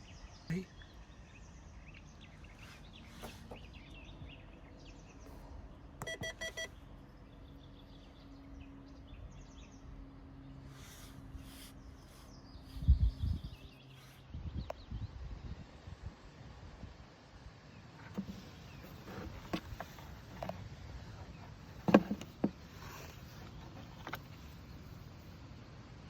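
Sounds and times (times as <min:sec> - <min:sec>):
small birds chirping: 0:00.0 - 0:15.6, 0:17.6 - 0:25.7
quick electronic beeps: 0:06.0 - 0:06.7.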